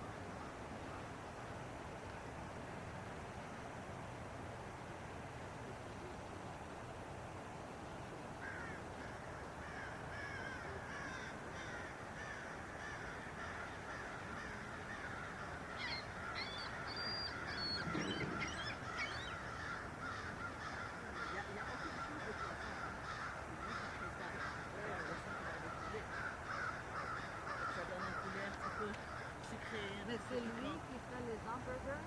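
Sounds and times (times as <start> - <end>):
steady background hiss: 0.0 - 32.0
chorus of birds chattering: 8.4 - 32.0.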